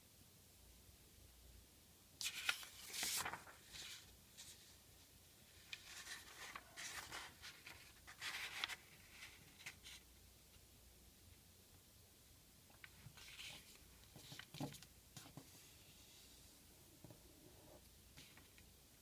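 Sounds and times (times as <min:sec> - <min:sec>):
paper rustling and crinkling: 0:02.2 - 0:04.8, 0:05.6 - 0:10.0.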